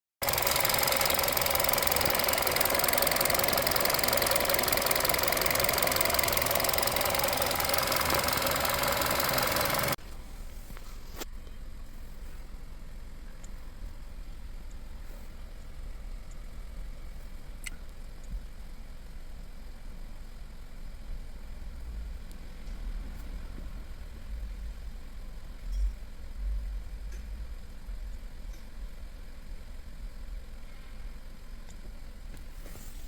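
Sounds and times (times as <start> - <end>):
car engine running: 0.2 - 10.0.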